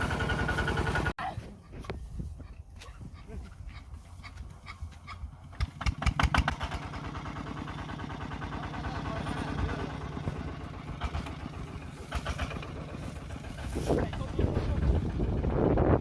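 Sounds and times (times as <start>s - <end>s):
tractor engine chugging: 0.0s - 1.2s, 3.8s - 16.0s.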